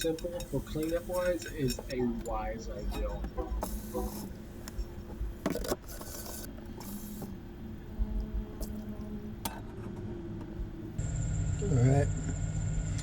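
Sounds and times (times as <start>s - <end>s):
utensils clicking and scraping: 0.0s - 7.3s
steady low hum: 0.0s - 13.0s
hiss: 3.6s - 4.3s.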